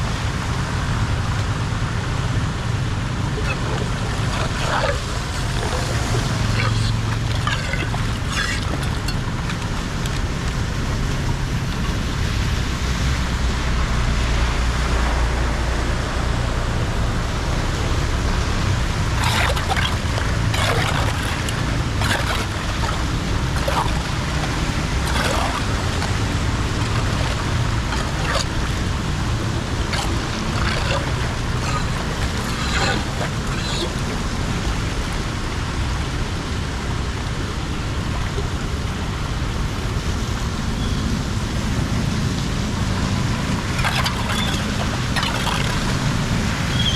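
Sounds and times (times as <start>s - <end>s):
water rushing and sloshing: 0.0s - 46.9s
short splashes: 18.5s - 34.3s, 43.1s - 46.9s.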